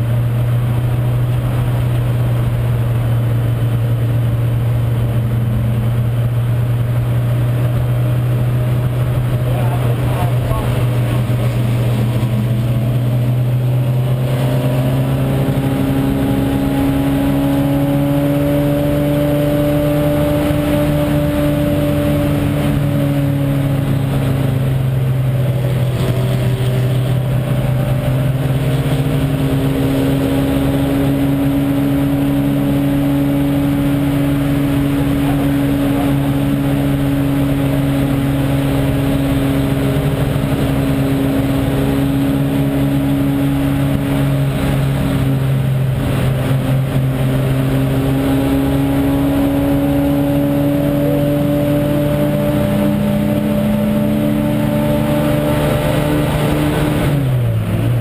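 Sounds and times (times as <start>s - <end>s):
race car engine running hard: 0.0s - 58.0s
wind and road noise: 0.0s - 58.0s.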